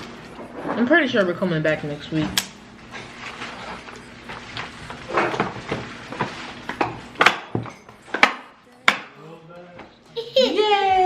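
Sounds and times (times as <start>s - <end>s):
objects knocking and clattering: 4.6s - 9.1s.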